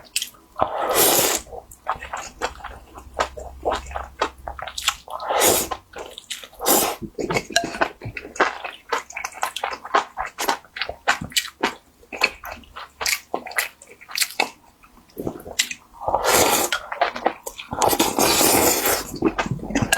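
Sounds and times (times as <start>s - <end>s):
slurping: 0.6s - 7.8s, 15.2s - 16.9s, 17.5s - 19.9s
chewing and lip-smacking: 6.0s - 15.9s.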